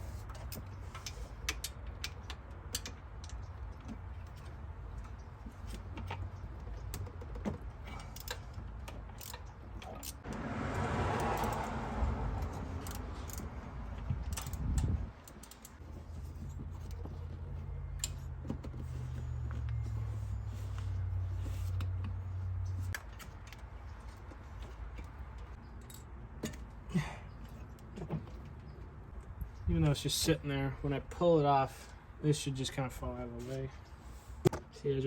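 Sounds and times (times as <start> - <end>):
hand tools clicking on metal: 12.4 - 13.6.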